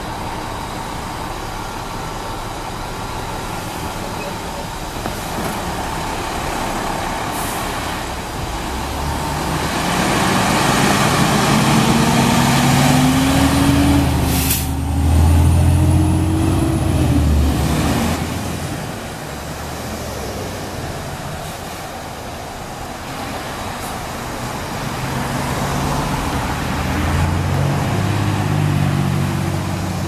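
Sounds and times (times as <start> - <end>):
fire truck diesel engine accelerating: 0.0 - 30.0
sharp hiss of air: 14.2 - 14.8.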